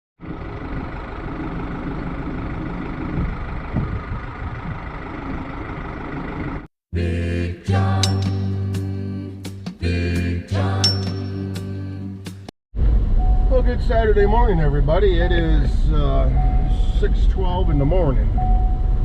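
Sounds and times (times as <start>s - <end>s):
engine running: 0.2s - 6.7s, 12.8s - 19.0s
music: 7.0s - 12.5s.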